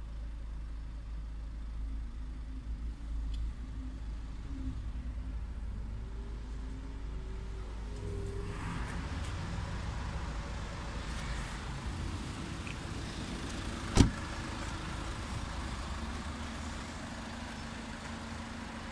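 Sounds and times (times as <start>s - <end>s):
diesel engine idling: 0.0s - 8.2s, 9.0s - 18.9s
car door shutting: 13.8s - 14.3s.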